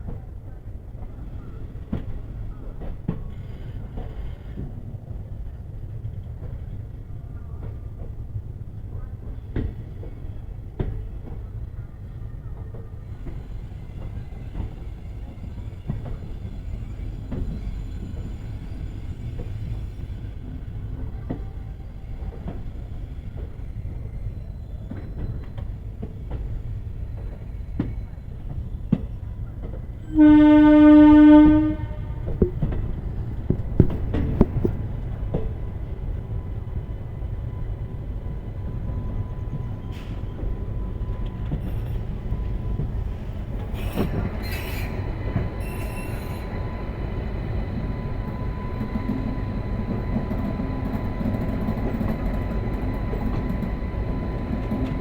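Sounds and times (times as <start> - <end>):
train rumbling: 0.0 - 55.0
locomotive horn blast: 30.1 - 32.6.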